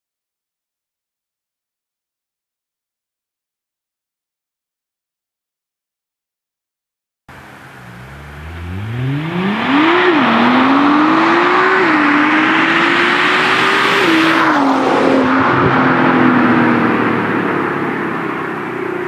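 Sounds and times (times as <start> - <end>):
car engine accelerating hard: 7.3 - 19.0.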